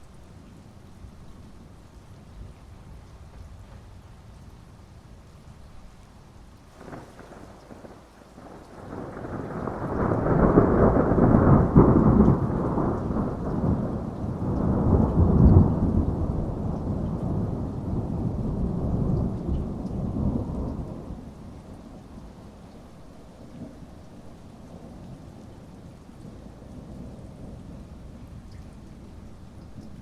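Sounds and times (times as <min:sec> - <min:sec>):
steady rain: 0:00.0 - 0:30.0
thunder rumbling: 0:06.8 - 0:22.4.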